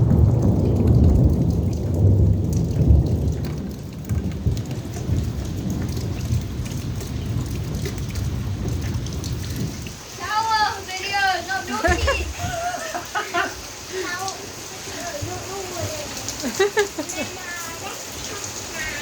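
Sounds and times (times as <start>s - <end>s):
low thunder rumble: 0.0s - 13.8s
heavy rain: 0.0s - 19.0s.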